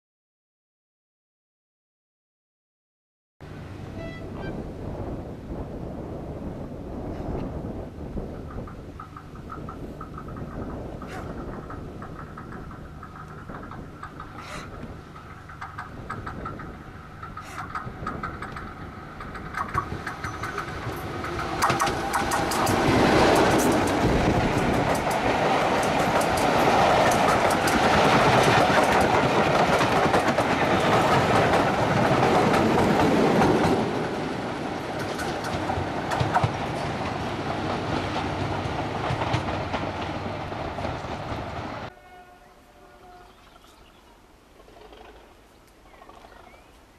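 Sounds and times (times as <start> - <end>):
diesel locomotive engine: 3.4 - 43.2
train wheels clicking over rail joints: 7.2 - 41.9.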